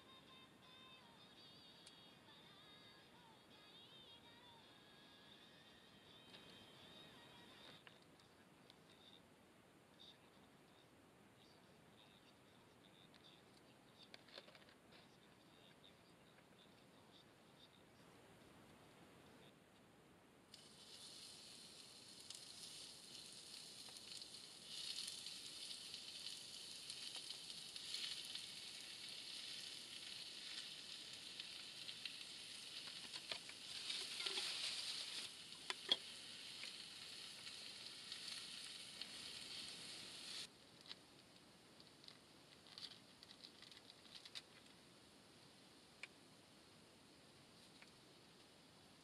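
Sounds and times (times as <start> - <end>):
meat sizzling in a pan: 20.5 - 40.5.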